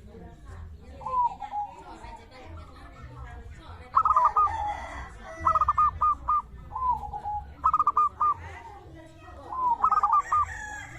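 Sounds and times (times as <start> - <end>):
dove cooing: 1.0 - 2.3, 4.0 - 10.9.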